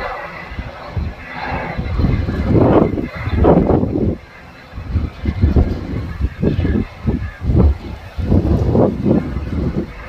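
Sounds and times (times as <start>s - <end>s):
strong wind buffeting microphone: 0.0s - 10.0s.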